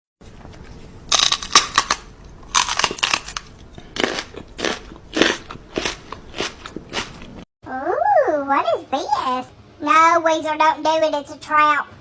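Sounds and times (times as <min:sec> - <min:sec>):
crackly crunching: 0:00.4 - 0:07.4.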